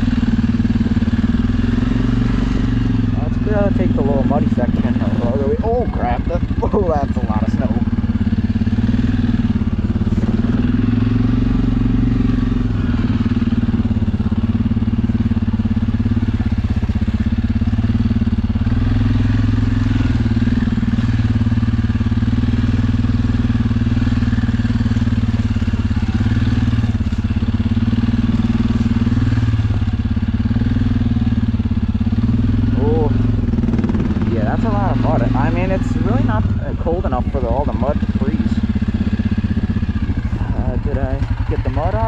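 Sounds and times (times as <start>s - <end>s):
quad bike engine running: 0.0s - 42.0s.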